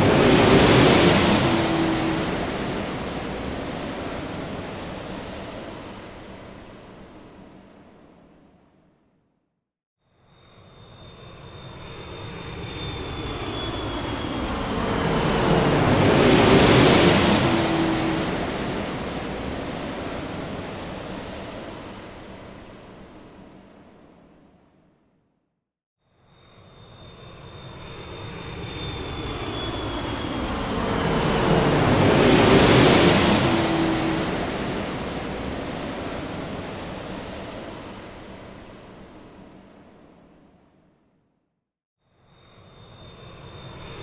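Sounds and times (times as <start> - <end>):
high engine whine: 0.0 - 5.8, 27.3 - 37.9
jet engine rush: 0.0 - 8.1, 11.2 - 24.1, 27.2 - 40.6.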